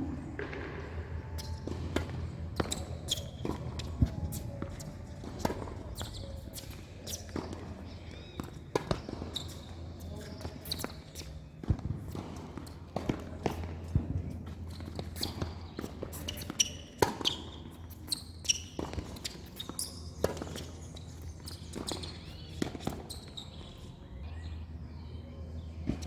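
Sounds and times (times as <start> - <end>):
tennis ball struck and bouncing: 0.3 - 6.2
footsteps: 0.4 - 7.8.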